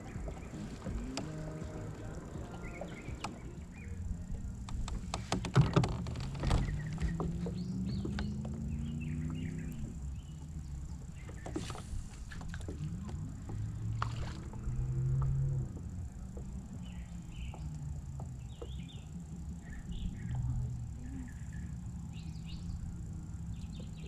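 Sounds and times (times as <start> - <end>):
gear knocking on kayak: 0.0 - 3.7, 4.6 - 19.2
low hum rising in pitch: 0.0 - 5.1, 5.8 - 11.4, 12.0 - 24.0.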